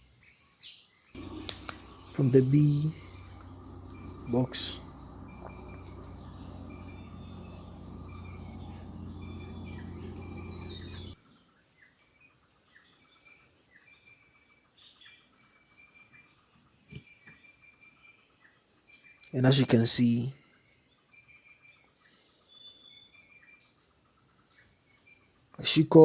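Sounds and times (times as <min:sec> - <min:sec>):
insects chirping: 0:00.0 - 0:11.9
low hum: 0:01.2 - 0:11.2.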